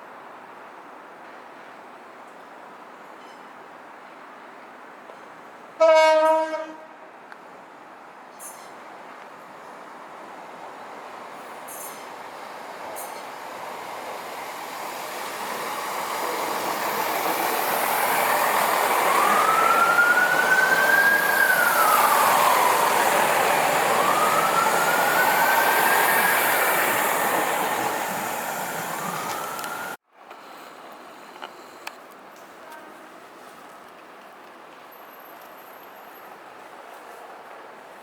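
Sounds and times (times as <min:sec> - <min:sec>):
train rumble passing: 0:09.7 - 0:30.0.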